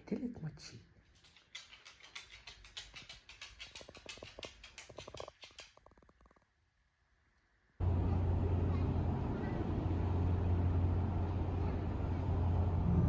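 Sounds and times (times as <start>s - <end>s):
rapid light clicking and pattering: 1.1s - 6.6s.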